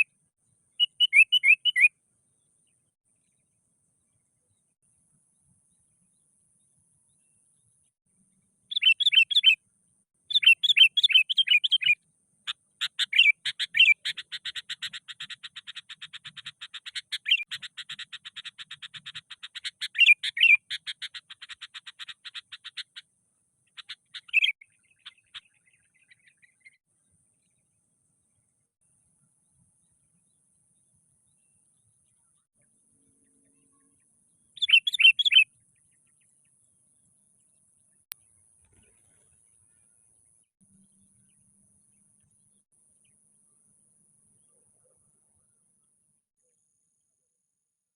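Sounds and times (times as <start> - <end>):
bulbul calling agitatedly: 8.7 - 9.6, 10.3 - 12.0, 12.8 - 23.0, 23.7 - 25.4, 34.6 - 35.4.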